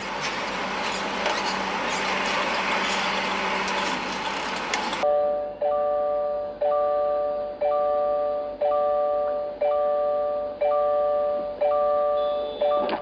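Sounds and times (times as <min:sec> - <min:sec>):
car warning chime: 0:05.0 - 0:13.0.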